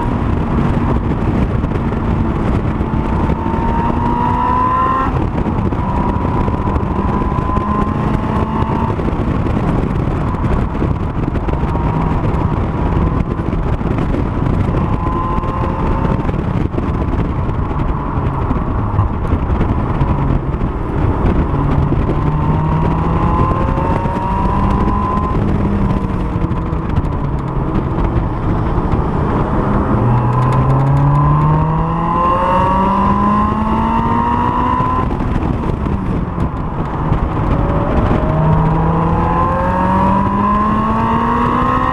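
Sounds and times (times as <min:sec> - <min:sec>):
car engine accelerating: 0:00.0 - 0:41.9
wind and road noise: 0:00.0 - 0:41.9.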